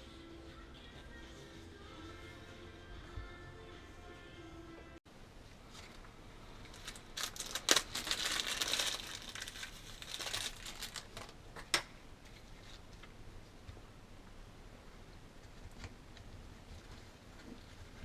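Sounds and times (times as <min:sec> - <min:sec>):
crinkling rustling handling noise: 0:05.6 - 0:11.4.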